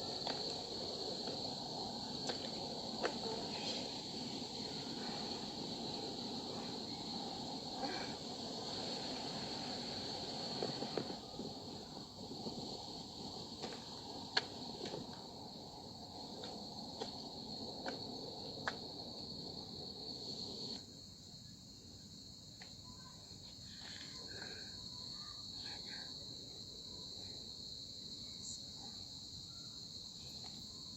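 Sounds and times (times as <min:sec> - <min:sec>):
crickets chirping chorus: 0:00.0 - 0:30.9.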